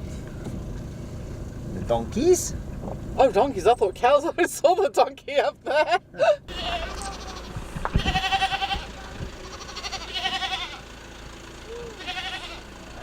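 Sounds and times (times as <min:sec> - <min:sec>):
livestock bleating: 0:06.5 - 0:10.9, 0:11.8 - 0:13.0.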